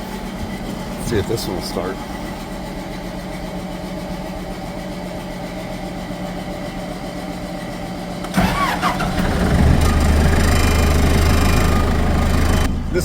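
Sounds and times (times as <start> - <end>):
diesel engine cranking and starting: 8.2 - 13.0
engine hum: 8.2 - 13.0.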